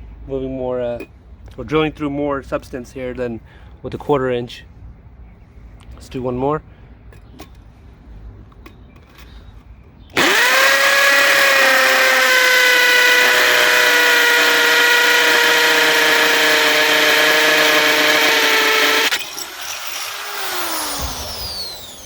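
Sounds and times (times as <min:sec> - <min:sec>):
hammer drill drilling into block: 0:10.2 - 0:22.0.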